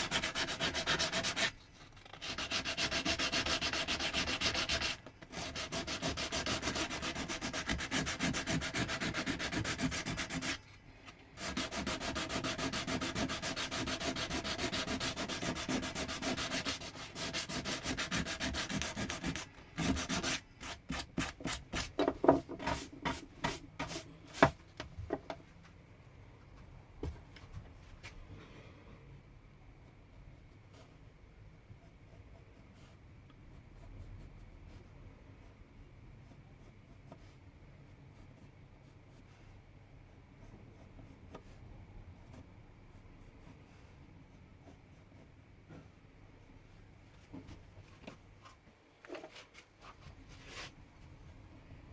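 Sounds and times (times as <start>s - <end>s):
sandpaper rubbing on wood: 0.0s - 1.5s, 2.2s - 10.6s, 11.4s - 20.4s.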